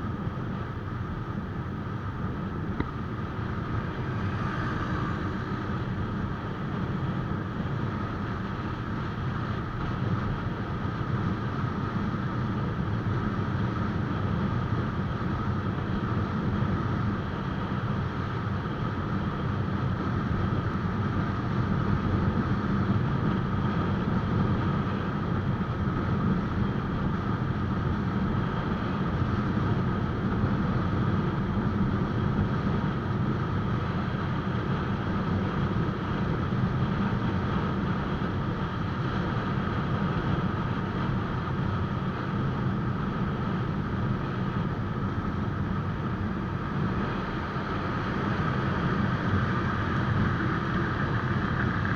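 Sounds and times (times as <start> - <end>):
road and wind noise: 0.0 - 51.9
motorcycle engine running: 39.9 - 51.9.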